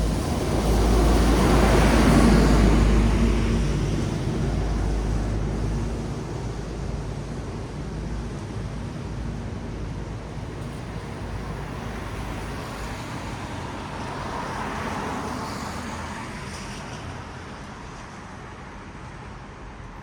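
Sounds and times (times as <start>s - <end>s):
low engine rumble: 0.0s - 13.6s.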